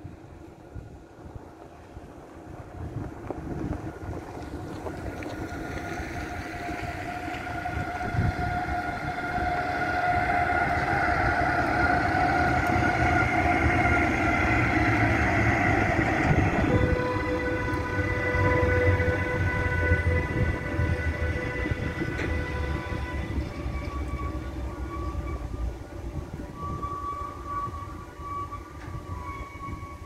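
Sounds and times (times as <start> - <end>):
freight train rumble: 0.0 - 30.0
steady whining tones: 0.0 - 30.0.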